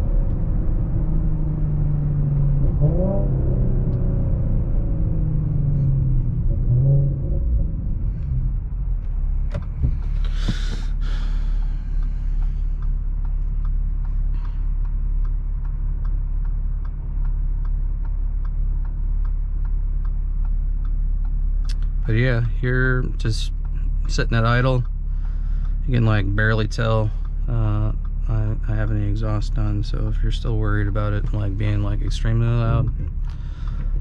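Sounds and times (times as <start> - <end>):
car engine idling: 0.0 - 34.0
regular ticking: 7.7 - 34.0.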